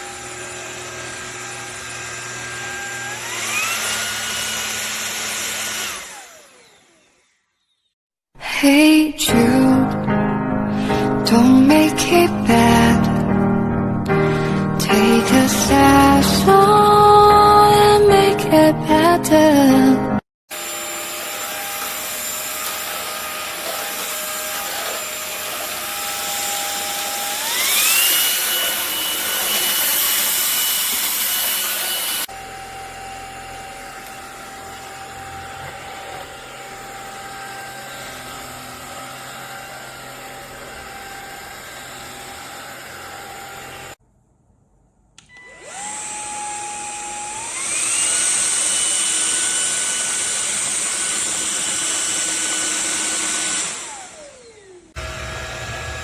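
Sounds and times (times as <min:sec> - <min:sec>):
stick vacuum motor whining: 0:00.0 - 0:07.9, 0:20.5 - 0:44.0, 0:45.2 - 0:56.0.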